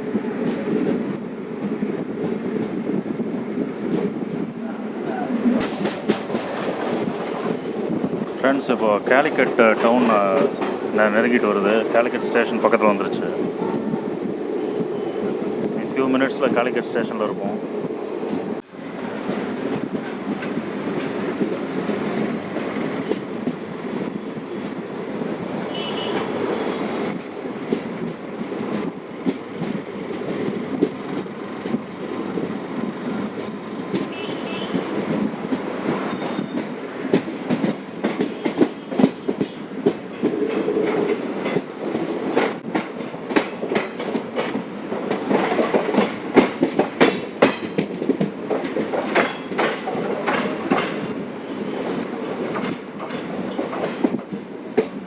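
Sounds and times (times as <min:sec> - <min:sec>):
passenger train rumbling on track: 0:00.0 - 0:55.0
wheels clattering over rail joints: 0:05.4 - 0:13.2, 0:19.0 - 0:55.0.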